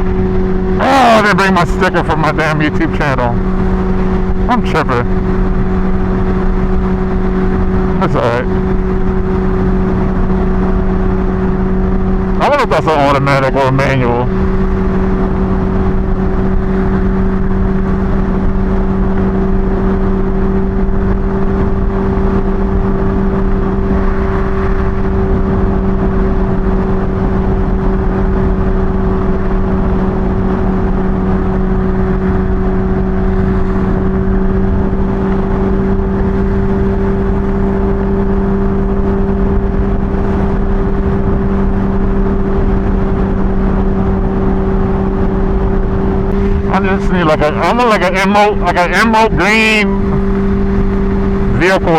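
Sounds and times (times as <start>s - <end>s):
motorcycle engine cruising: 0.0s - 51.9s
wind rush: 14.2s - 51.9s.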